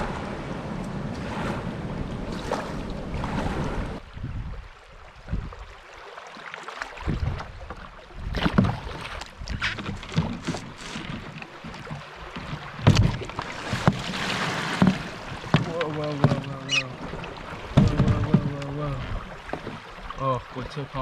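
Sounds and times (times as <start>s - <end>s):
wind on microphone: 0.0s - 5.8s, 7.0s - 11.2s
waves splashing against canoe: 0.0s - 21.0s.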